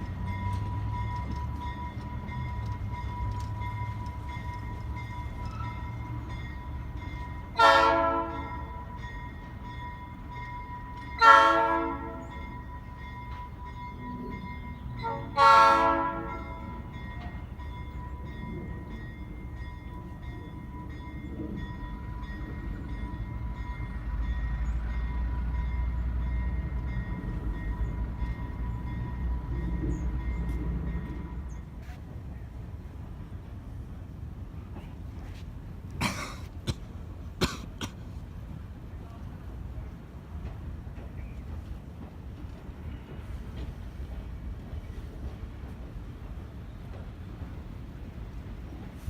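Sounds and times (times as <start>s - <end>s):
diesel locomotive engine rumbling: 0.0s - 49.0s
train air horn blasts: 7.5s - 8.6s, 11.2s - 12.3s, 15.0s - 16.6s.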